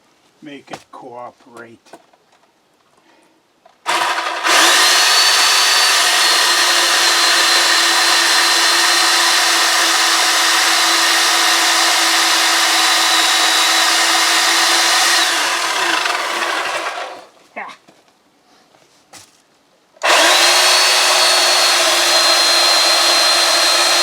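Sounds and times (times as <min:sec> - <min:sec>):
electric chainsaw whining: 0:03.9 - 0:17.3, 0:20.0 - 0:24.0.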